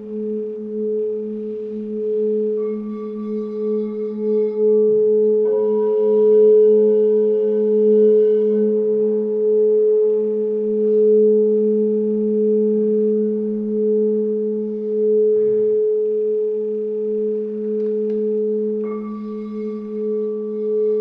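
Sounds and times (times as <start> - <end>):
higher bowl tone: 0.0 - 21.0
singing bowls droning: 0.0 - 21.0.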